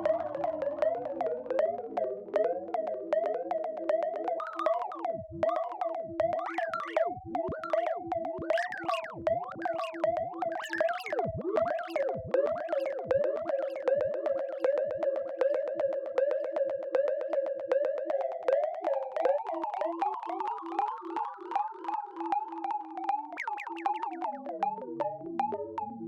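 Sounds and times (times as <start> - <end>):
rapid electronic ticking: 0.0 - 20.4.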